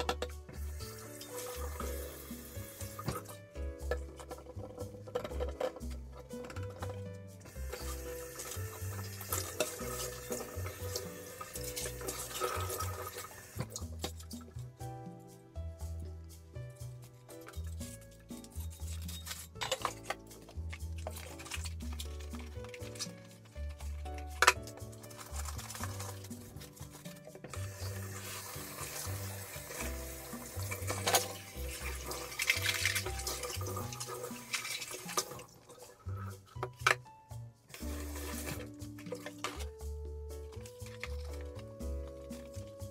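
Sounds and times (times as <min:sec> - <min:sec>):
background music: 0:00.0 - 0:42.9
faucet water splashing into pot: 0:00.5 - 0:03.3, 0:07.5 - 0:14.0, 0:27.6 - 0:36.6.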